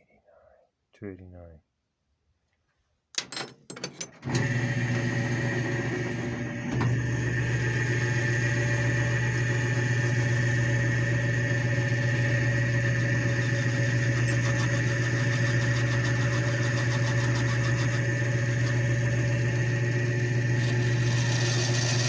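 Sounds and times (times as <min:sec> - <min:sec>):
lathe motor humming and whining: 0:04.2 - 0:22.0.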